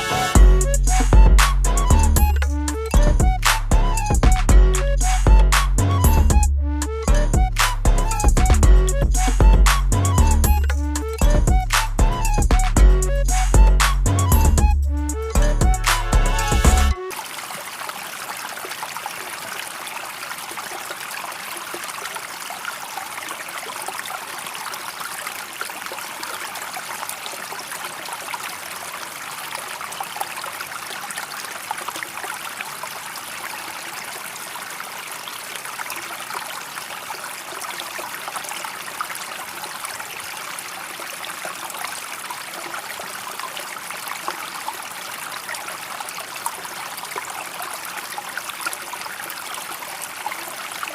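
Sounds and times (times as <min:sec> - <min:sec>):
water running and splashing: 0:16.1 - 0:50.9.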